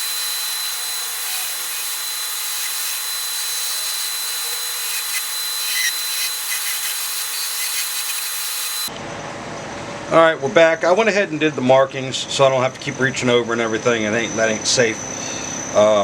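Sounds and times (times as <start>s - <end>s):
high whine of lathe: 0.0s - 8.9s, 12.6s - 16.0s
wood lathe cutting wood: 0.0s - 8.9s.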